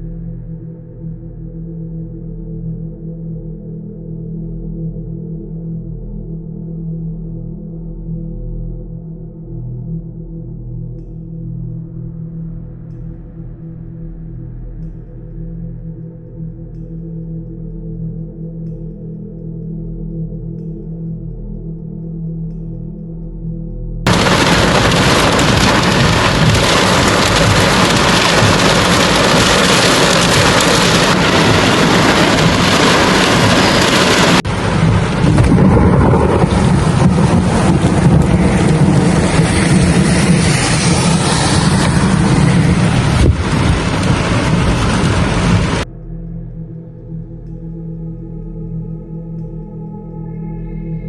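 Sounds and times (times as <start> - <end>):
heavy rain hiss: 24.1 - 45.8
low rumbling thunder: 24.1 - 45.8.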